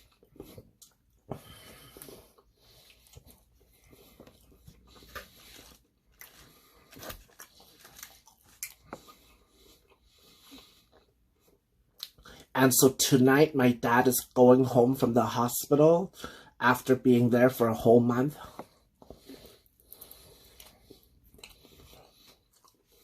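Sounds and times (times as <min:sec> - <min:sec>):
person chewing food: 0:00.0 - 0:12.5, 0:18.4 - 0:23.0.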